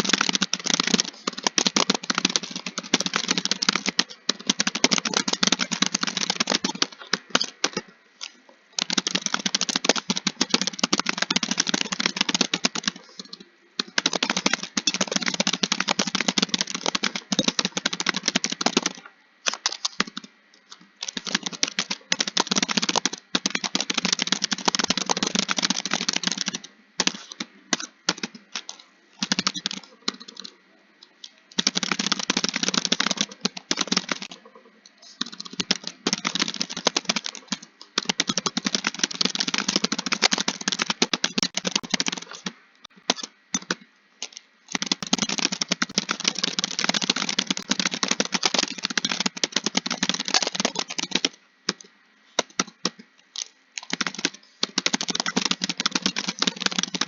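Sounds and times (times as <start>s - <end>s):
fast typing on keyboard: 0.0s - 30.6s, 31.2s - 57.0s.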